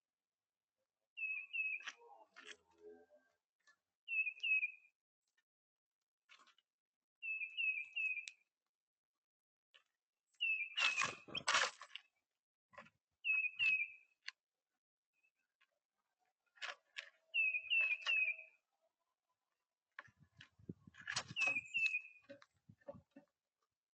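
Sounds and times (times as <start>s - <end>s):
goldfinch chirps: 1.2s - 2.0s, 4.1s - 4.9s, 10.4s - 11.5s, 13.2s - 14.0s, 17.3s - 18.6s, 21.2s - 22.4s.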